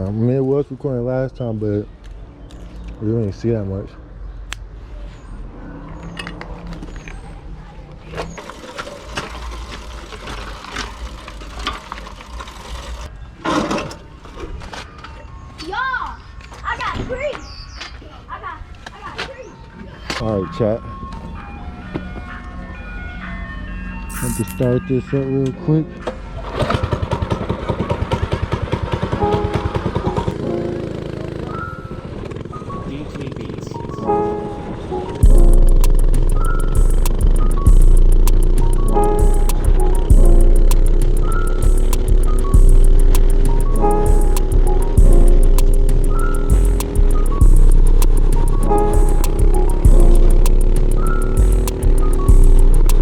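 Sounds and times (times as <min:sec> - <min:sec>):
small engine chugging: 0:26.4 - 0:33.9, 0:36.1 - 0:53.0.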